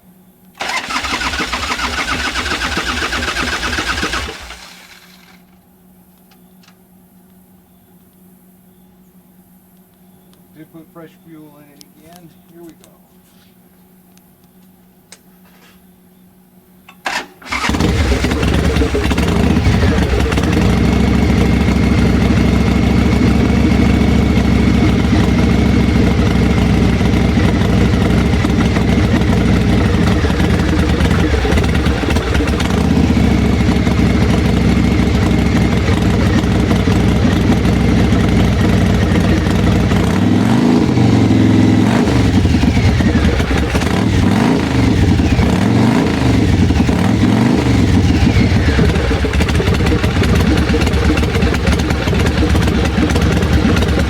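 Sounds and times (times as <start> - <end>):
engine running and revving: 0.6 - 5.2, 17.5 - 54.0.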